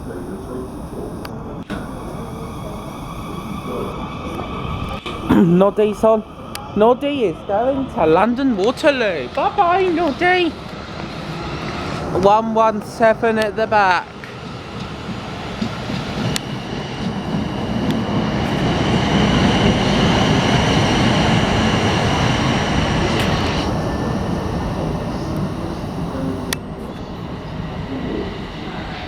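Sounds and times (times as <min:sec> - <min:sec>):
electric train rumble: 0:00.0 - 0:29.0
high whine: 0:00.0 - 0:29.0.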